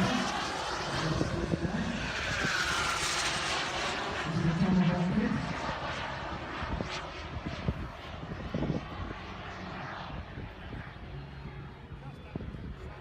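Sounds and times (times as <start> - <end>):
model jet turbine rush: 0.0 - 8.8.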